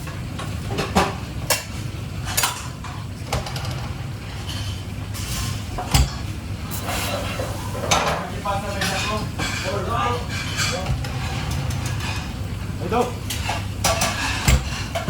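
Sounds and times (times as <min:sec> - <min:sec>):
dishes and cutlery clattering: 0:00.7 - 0:15.0.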